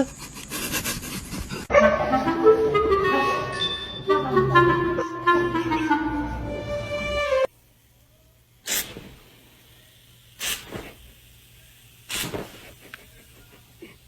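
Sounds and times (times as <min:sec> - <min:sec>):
animal hissing: 0:08.6 - 0:09.2, 0:10.4 - 0:11.2, 0:12.0 - 0:12.9.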